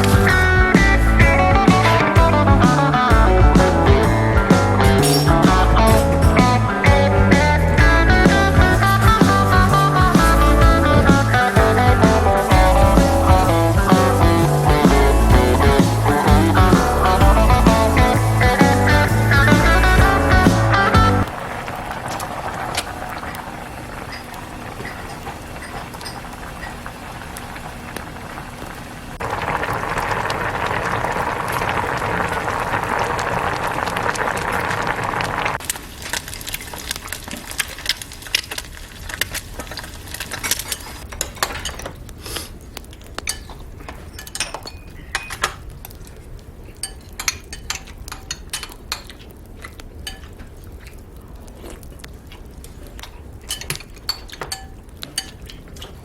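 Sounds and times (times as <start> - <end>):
food hissing in a pot: 8.3 - 24.8, 42.2 - 42.6
utensils clinking on dishes: 24.0 - 26.8, 41.1 - 42.0, 43.2 - 45.6, 46.8 - 49.3, 50.0 - 50.4, 53.4 - 56.0.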